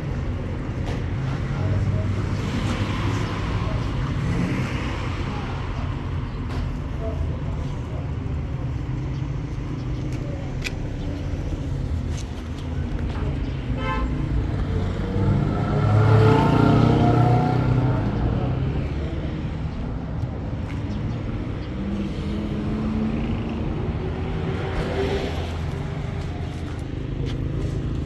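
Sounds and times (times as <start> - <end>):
street traffic: 0.0 - 28.0
car horn toot: 13.8 - 14.2.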